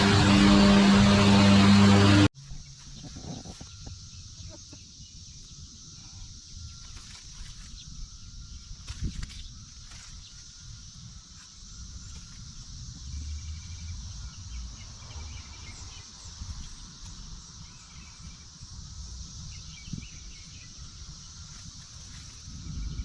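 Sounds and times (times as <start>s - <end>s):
low rumble: 0.0s - 2.3s, 12.4s - 16.0s
cicadas droning: 0.0s - 23.0s.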